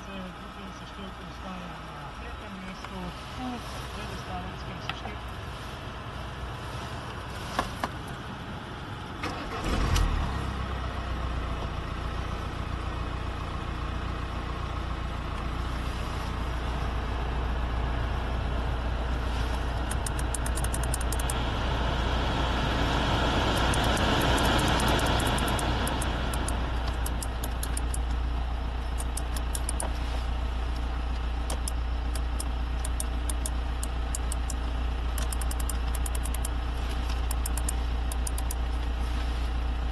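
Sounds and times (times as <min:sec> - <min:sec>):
diesel engine starting and idling: 0:00.0 - 0:39.9
clicks: 0:19.8 - 0:21.4, 0:23.6 - 0:28.2, 0:28.9 - 0:29.9, 0:31.4 - 0:38.6.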